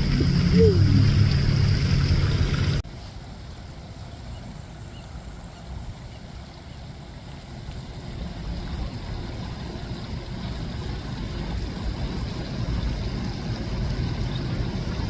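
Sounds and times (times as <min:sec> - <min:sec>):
low irregular rumbling: 0:00.0 - 0:02.8.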